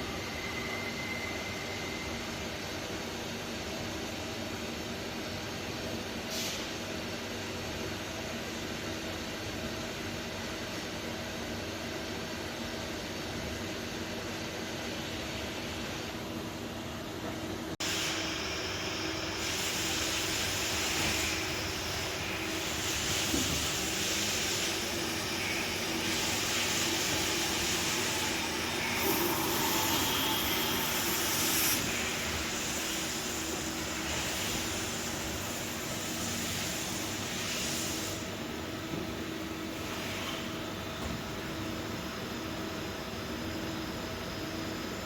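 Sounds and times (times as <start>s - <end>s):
lathe machine hum: 17.8s - 35.8s
machine hiss: 17.8s - 38.8s.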